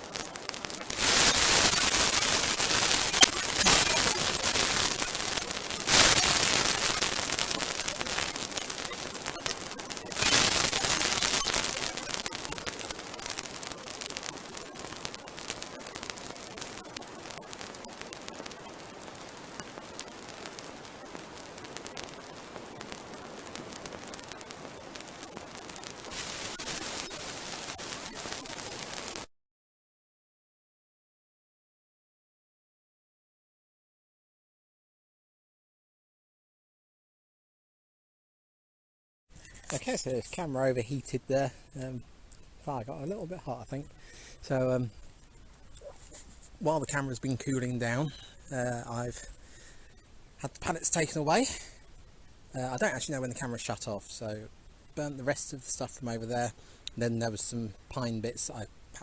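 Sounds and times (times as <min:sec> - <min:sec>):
bonfire crackling and popping: 0:00.0 - 0:29.3
fire hissing: 0:00.0 - 0:29.3.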